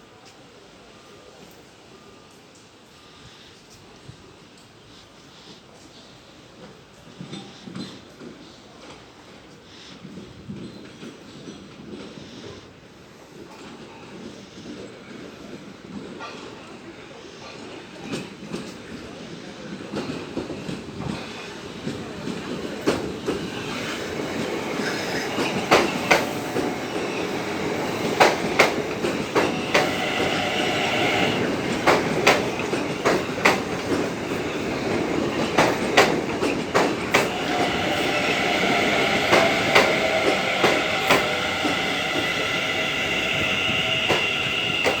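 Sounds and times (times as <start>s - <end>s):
train rumble: 6.1s - 45.0s
train wheels clacking over rail joints: 19.7s - 45.0s.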